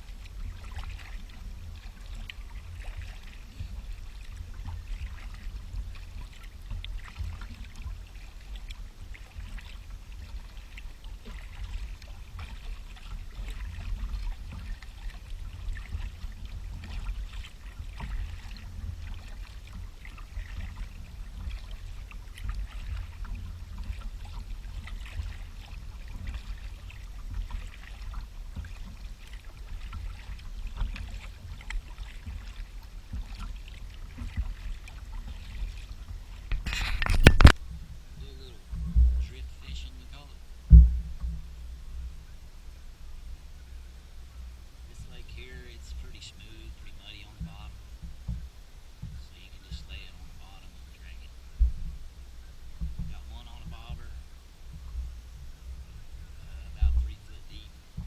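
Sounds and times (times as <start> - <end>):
kayak paddle splashing water: 0.0 - 58.0
steady low rumble: 0.0 - 58.0.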